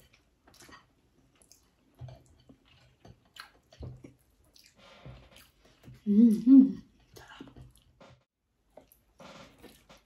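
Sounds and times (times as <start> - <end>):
chewing and lip smacking: 0.0 - 6.0.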